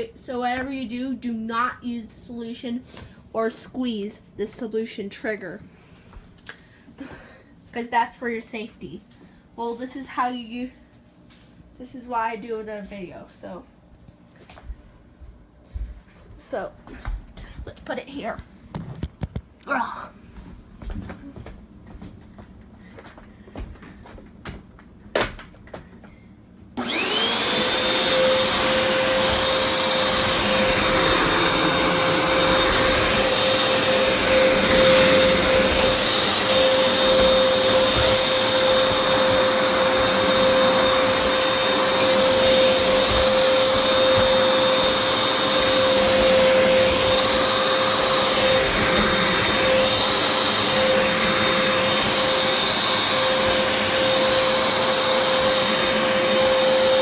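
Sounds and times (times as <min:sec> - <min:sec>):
floor cleaner motor whine: 0:26.8 - 0:57.0.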